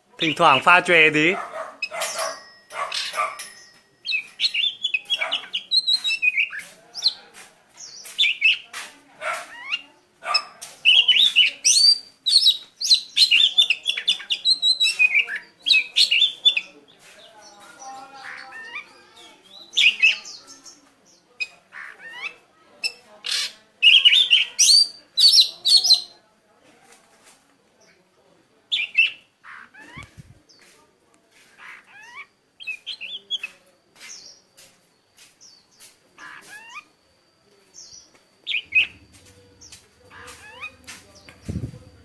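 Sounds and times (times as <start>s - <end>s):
birds twittering chirps: 0.2s - 26.2s, 28.7s - 30.8s, 31.4s - 42.0s.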